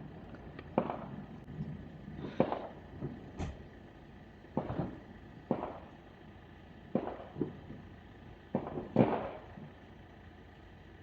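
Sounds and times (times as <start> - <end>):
distant fireworks exploding: 0.7 - 1.3, 2.2 - 3.7, 4.5 - 6.0, 6.8 - 7.9, 8.5 - 9.8.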